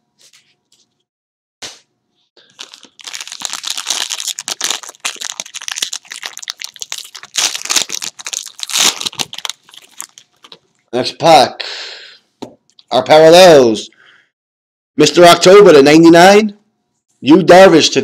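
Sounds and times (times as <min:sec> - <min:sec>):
plastic wrapper crinkling: 0:02.4 - 0:10.9.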